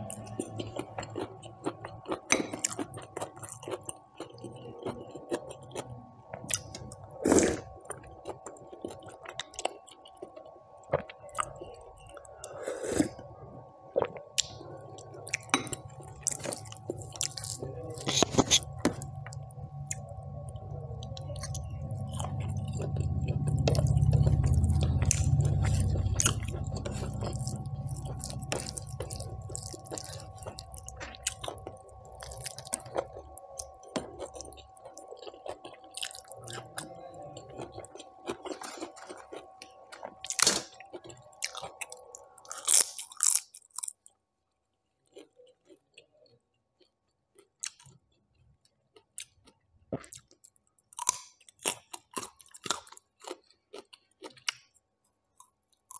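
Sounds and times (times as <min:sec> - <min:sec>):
person chewing with wet smacks: 0:00.0 - 0:07.0, 0:14.0 - 0:44.2, 0:45.0 - 0:55.9
faint steady hum: 0:00.0 - 0:55.9
low rumble: 0:18.8 - 0:31.2.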